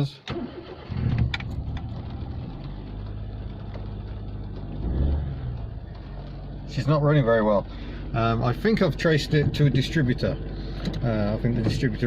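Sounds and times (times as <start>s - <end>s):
small car engine misfiring: 0.2s - 12.0s.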